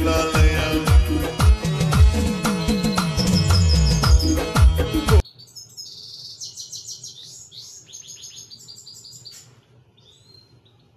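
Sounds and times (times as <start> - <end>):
song with music: 0.0 - 5.2
goldfinch twittering: 2.6 - 4.7.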